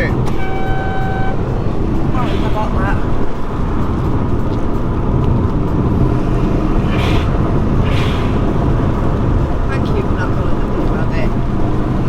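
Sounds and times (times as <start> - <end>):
car engine running: 0.0 - 12.0
road noise: 0.0 - 12.0
short hisses: 6.9 - 8.6.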